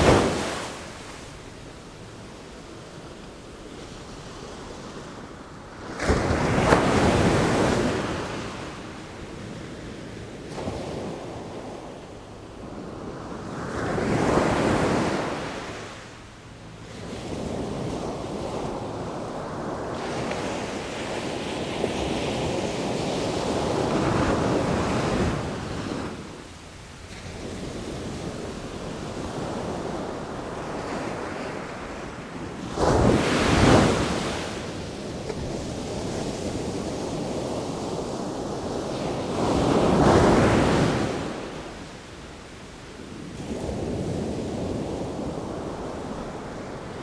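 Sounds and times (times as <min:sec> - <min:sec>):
sea waves breaking: 0:00.0 - 0:03.1
wind: 0:00.0 - 0:47.0.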